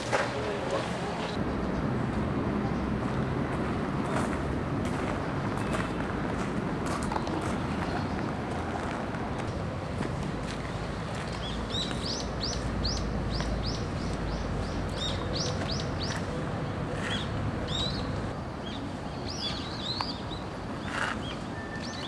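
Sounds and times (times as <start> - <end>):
bird chirping: 11.3 - 16.4.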